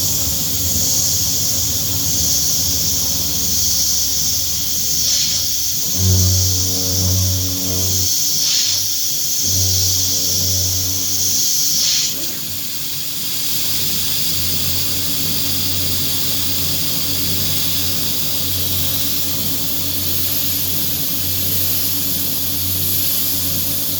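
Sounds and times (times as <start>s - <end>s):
high-pitched spindle whine: 0.0s - 13.2s
router spindle hiss and hum: 0.0s - 23.8s.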